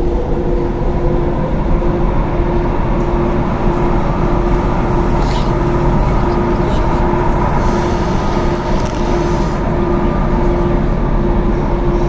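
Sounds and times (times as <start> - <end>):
steady tone: 1.8 - 10.6.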